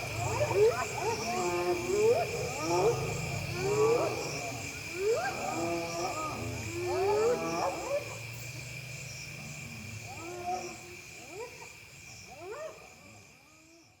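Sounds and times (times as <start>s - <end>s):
hyenas whooping and yelping: 0.0s - 8.4s
low growl: 0.0s - 11.0s
insects droning: 0.0s - 14.0s.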